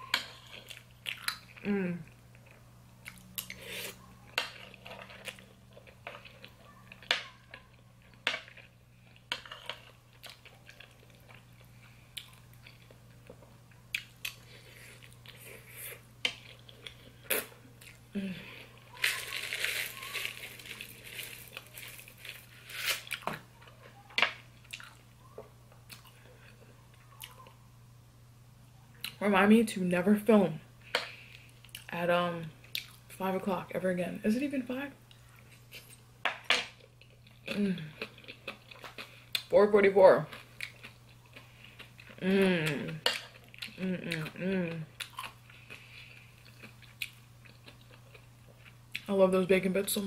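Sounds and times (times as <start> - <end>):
chewing macaroni and cheese: 0.0 - 27.6, 32.5 - 33.2, 36.7 - 39.5, 40.2 - 49.1
rustling: 18.9 - 23.2.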